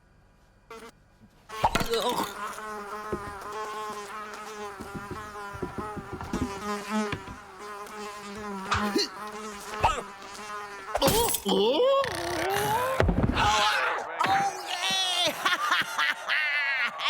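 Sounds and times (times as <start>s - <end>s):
flying insect buzzing: 0.7s - 13.0s
soft knocks: 3.1s - 3.5s, 4.7s - 7.5s.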